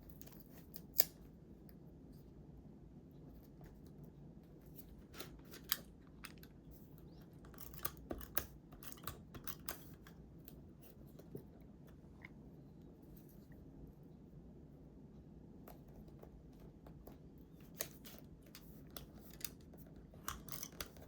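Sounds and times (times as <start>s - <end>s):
scissors snipping paper: 0.0s - 1.2s, 7.4s - 10.6s, 17.6s - 21.0s.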